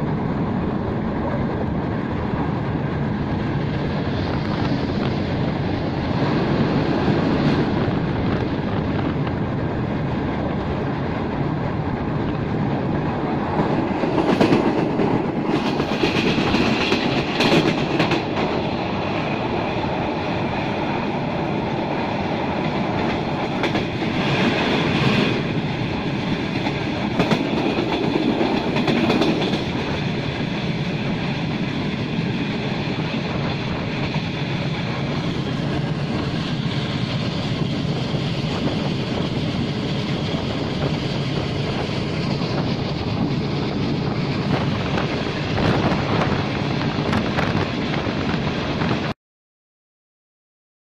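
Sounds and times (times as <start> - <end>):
rushing air: 0.0 - 49.1
train wheels clattering on rails: 2.3 - 49.1.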